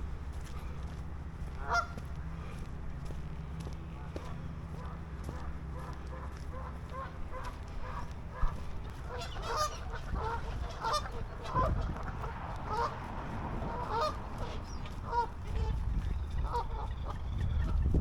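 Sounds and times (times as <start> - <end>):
low steady rumble: 0.0 - 18.0
geese honking: 1.6 - 2.1, 4.8 - 17.9.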